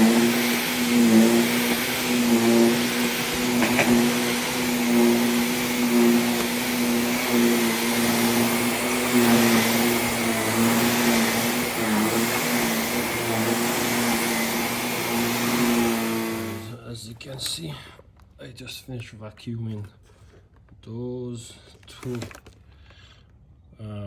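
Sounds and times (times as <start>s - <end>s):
vacuum cleaner running: 0.0s - 16.8s.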